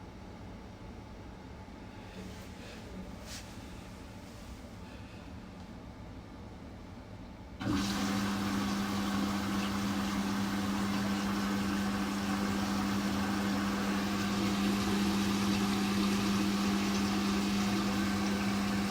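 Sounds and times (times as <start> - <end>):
washing machine hum: 0.0 - 18.9
water rushing through machine: 7.6 - 18.9.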